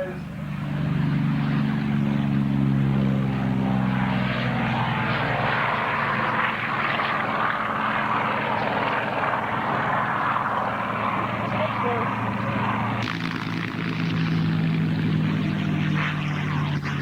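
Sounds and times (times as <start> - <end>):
propeller aircraft engine drone: 0.0 - 17.0
propeller and exhaust rush: 0.0 - 17.0.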